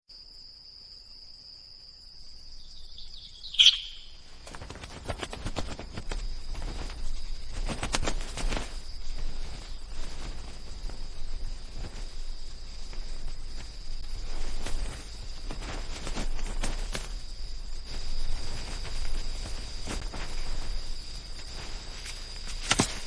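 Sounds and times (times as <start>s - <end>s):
high insect drone: 0.1s - 23.0s
sharp bird call: 3.0s - 4.2s.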